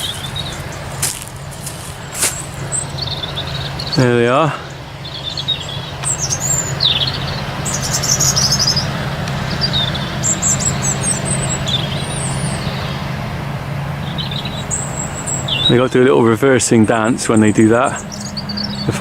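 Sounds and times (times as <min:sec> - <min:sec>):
distant farm machinery drone: 0:00.0 - 0:19.0
small birds chirping: 0:00.0 - 0:19.0.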